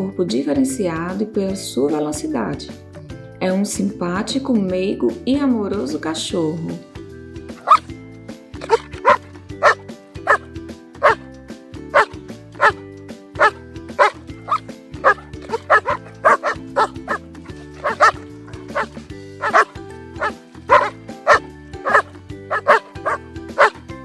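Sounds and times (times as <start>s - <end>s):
dog barking: 7.6s - 7.9s, 8.6s - 11.2s, 12.0s - 12.8s, 13.4s - 23.8s.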